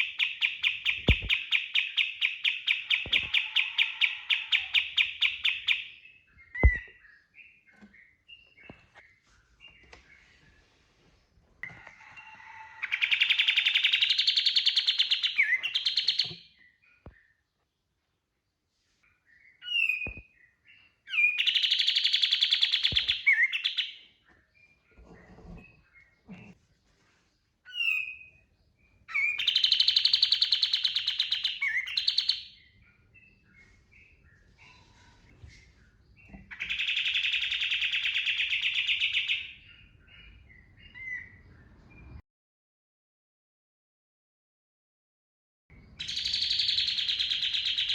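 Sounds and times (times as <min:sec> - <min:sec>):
songbird whistling and trilling: 0:00.0 - 0:08.6, 0:12.9 - 0:17.1, 0:19.4 - 0:24.0, 0:27.7 - 0:28.4, 0:29.1 - 0:34.4, 0:46.0 - 0:47.9.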